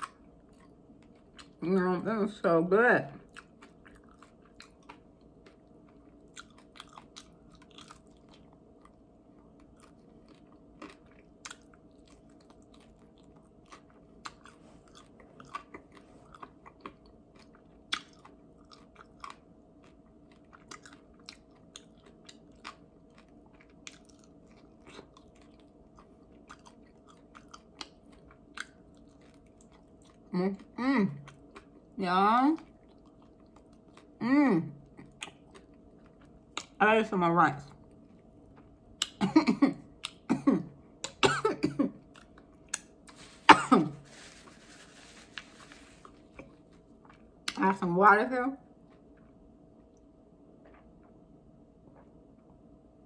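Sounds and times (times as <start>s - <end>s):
person chewing with crunches: 0.0s - 1.7s, 3.1s - 36.8s, 37.6s - 41.2s, 41.9s - 47.7s, 48.7s - 52.7s
faint steady hum: 0.0s - 53.0s.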